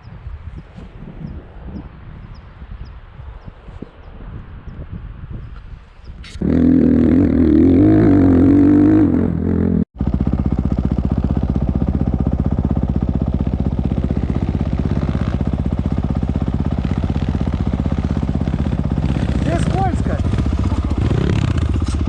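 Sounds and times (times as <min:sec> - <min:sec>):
motorcycle engine revving: 0:06.3 - 0:22.0.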